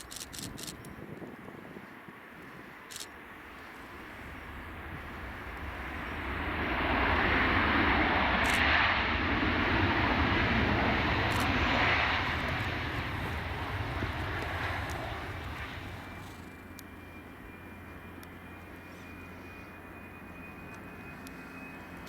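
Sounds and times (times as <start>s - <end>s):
jet aircraft passing: 0.0s - 22.0s.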